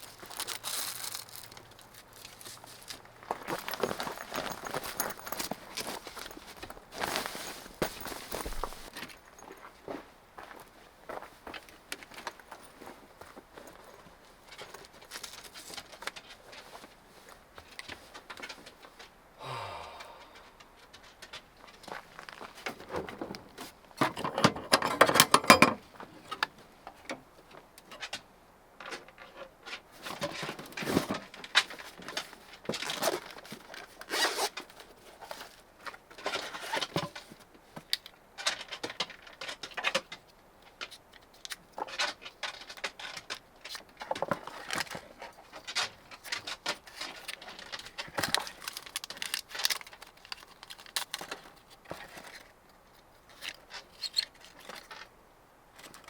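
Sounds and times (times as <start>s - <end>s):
hands rustling and scraping objects: 0.0s - 9.7s, 40.2s - 55.1s.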